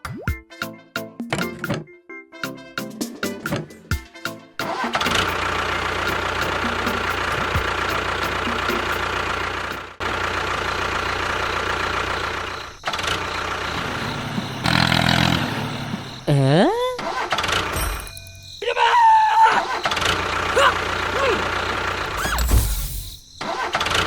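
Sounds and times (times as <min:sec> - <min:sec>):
engine running: 0:04.6 - 0:18.2, 0:19.6 - 0:24.0.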